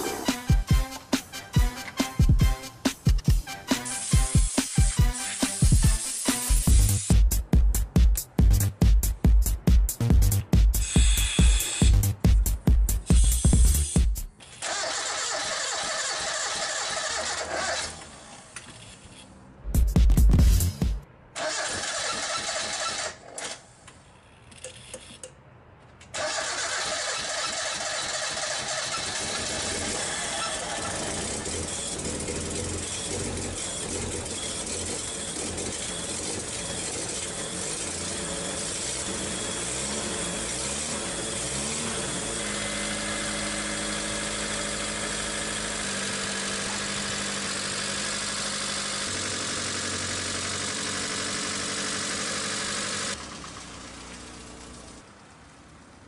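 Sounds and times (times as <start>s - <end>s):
car engine revving and idling: 27.2s - 55.1s.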